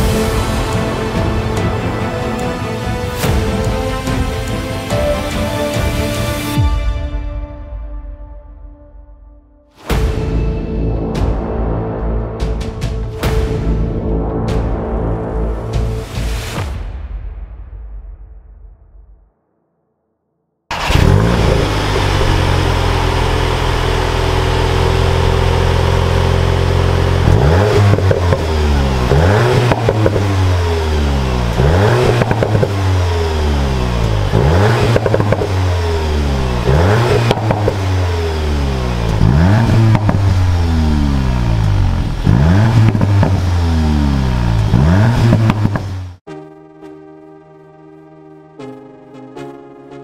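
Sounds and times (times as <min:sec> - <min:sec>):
car engine idling and revving: 0:00.0 - 0:06.6, 0:20.7 - 0:46.3.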